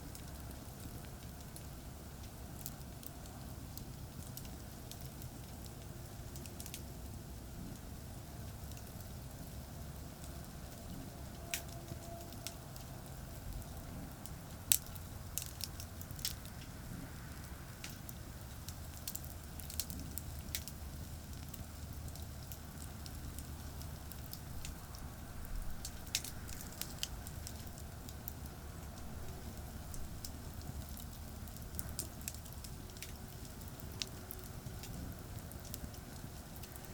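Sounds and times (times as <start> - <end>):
fire popping: 0.0 - 36.9
wood fire crackling: 0.0 - 36.9
distant highway traffic: 10.3 - 36.9.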